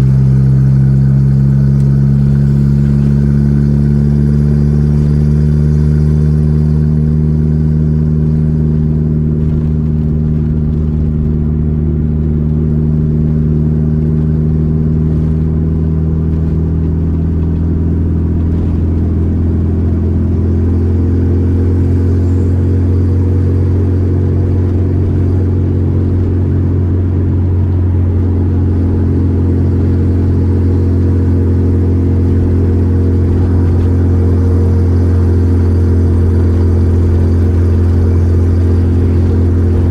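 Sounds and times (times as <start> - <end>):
car engine drone: 0.0 - 39.9.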